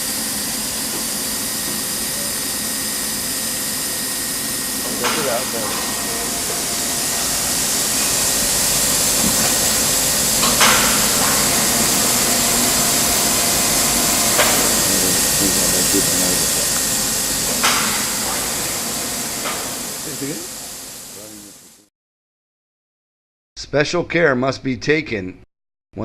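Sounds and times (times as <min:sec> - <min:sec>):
steady hiss: 0:00.0 - 0:21.8
sharp metallic knocks: 0:04.5 - 0:21.2.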